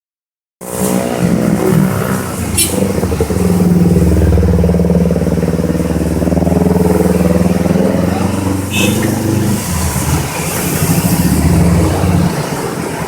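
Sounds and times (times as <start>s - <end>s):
vehicle engine running: 0.7s - 13.0s.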